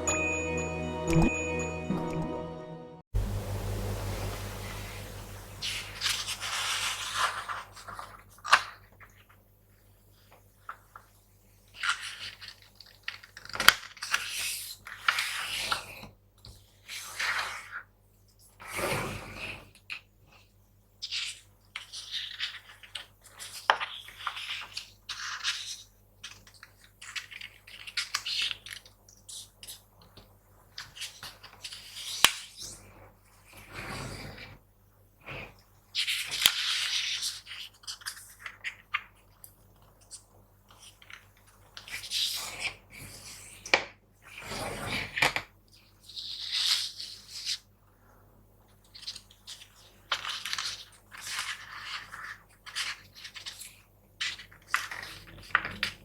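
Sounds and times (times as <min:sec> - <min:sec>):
paper creasing strokes and taps: 0:04.0 - 0:08.7
paper rustling and crinkling: 0:04.3 - 0:09.4, 0:21.0 - 0:29.8, 0:35.9 - 0:43.5, 0:48.7 - 0:56.0.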